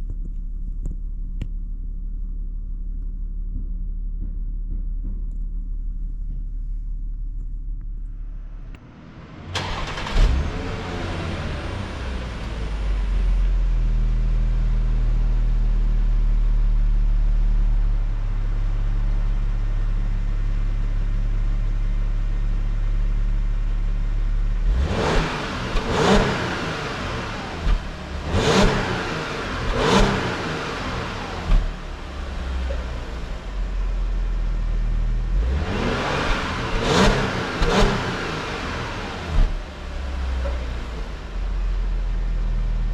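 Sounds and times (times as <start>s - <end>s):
car engine starting and idling: 0.0s - 42.9s
engine revving in throttle blips: 8.4s - 15.0s, 24.5s - 42.9s.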